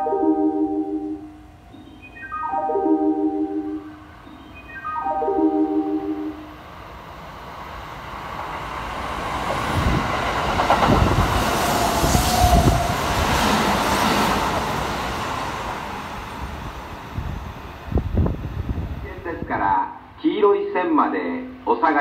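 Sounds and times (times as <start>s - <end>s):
electric train passing: 0.0s - 20.2s
wheels clacking over rail joints: 8.2s - 12.0s.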